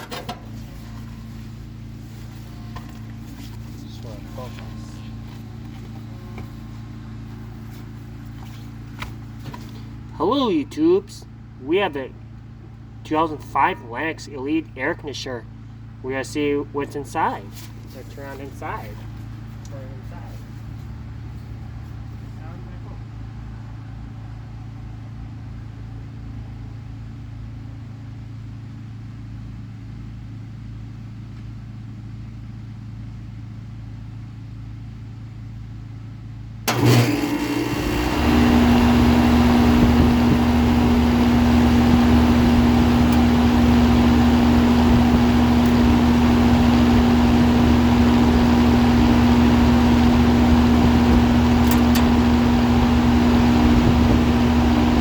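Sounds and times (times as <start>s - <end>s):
air conditioner kicking on: 0.0s - 1.4s, 36.6s - 55.0s
air conditioner humming: 0.0s - 25.4s, 36.6s - 55.0s.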